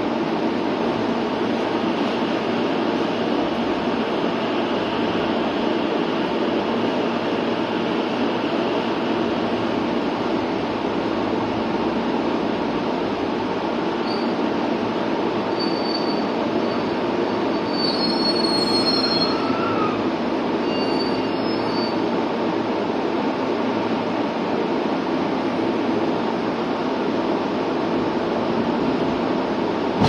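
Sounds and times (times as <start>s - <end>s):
train rumble: 0.0s - 30.0s
high-pitched wheel squeals: 15.6s - 16.8s, 17.6s - 20.0s, 20.6s - 22.0s.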